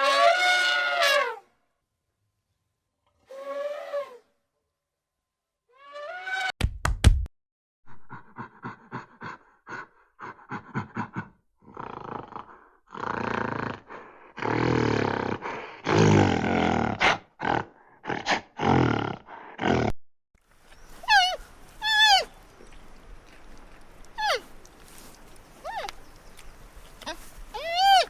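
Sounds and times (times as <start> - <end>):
animal grunting: 7.9 - 20.0.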